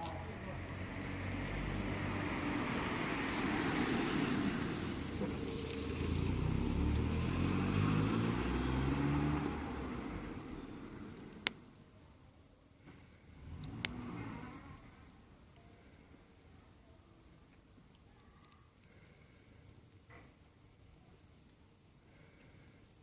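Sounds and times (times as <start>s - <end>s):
vehicle engine passing by: 0.0s - 11.6s, 13.1s - 15.1s.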